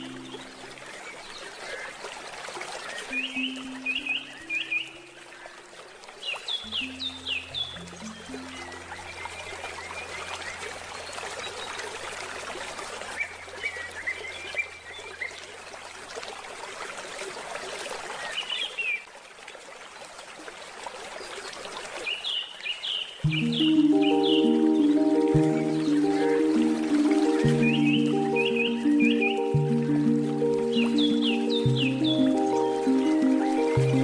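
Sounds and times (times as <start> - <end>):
handpan notes: 0.0 - 1.2, 3.1 - 5.5, 6.6 - 14.5, 23.2 - 34.0
small birds chirping: 0.0 - 2.1, 2.9 - 5.6, 6.3 - 12.2, 22.2 - 34.0
stream water flowing: 0.0 - 34.0
low steady tone: 23.2 - 34.0.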